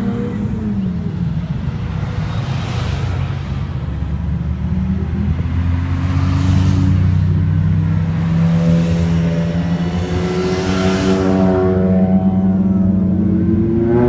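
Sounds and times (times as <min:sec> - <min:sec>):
passing traffic: 0:00.0 - 0:14.0
car engine accelerating: 0:04.4 - 0:14.0.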